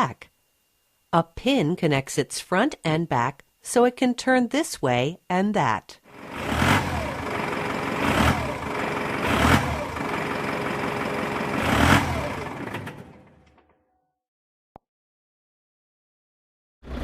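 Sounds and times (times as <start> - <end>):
truck engine running: 6.1 - 13.6.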